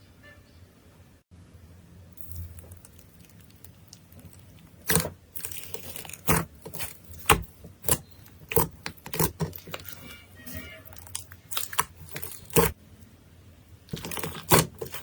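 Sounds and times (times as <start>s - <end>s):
slime popping: 2.2s - 12.8s, 13.9s - 15.0s.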